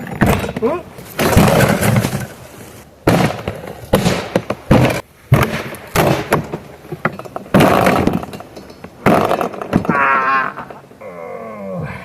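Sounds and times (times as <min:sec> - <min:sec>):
metal and plastic crashing: 0:00.0 - 0:02.4.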